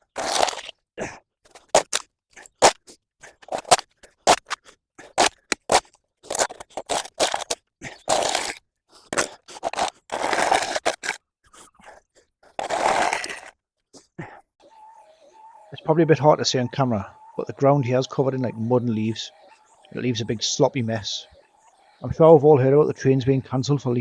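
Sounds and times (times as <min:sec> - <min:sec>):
scraping and crunching vegetation: 0:00.0 - 0:00.8, 0:01.5 - 0:14.1.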